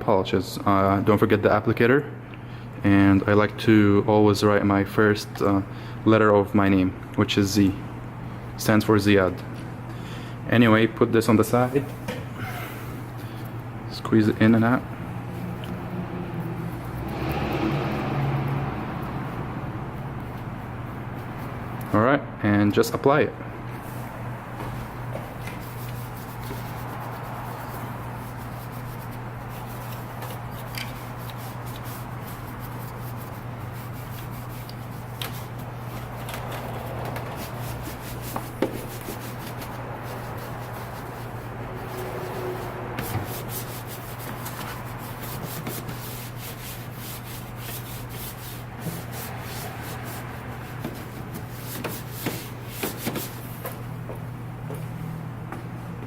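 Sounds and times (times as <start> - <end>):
pad scrubbing: 14.4 - 21.8, 24.6 - 53.6.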